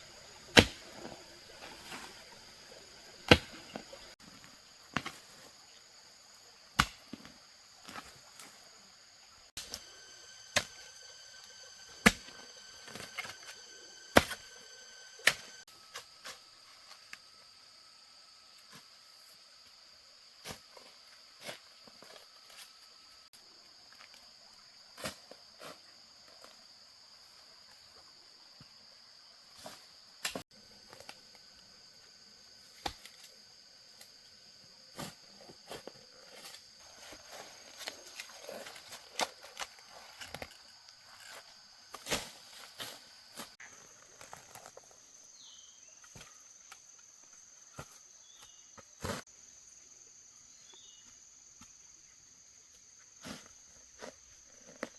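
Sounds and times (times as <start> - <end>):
insects buzzing high-pitched: 0.0 - 6.4, 7.0 - 20.0.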